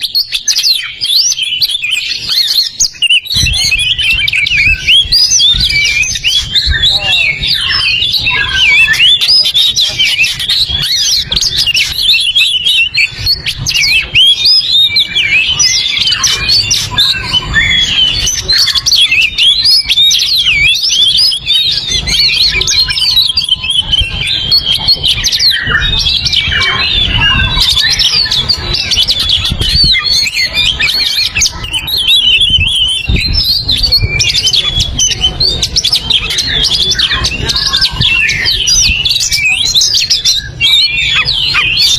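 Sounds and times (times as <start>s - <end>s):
bird singing rapid chirps: 0.0s - 41.9s.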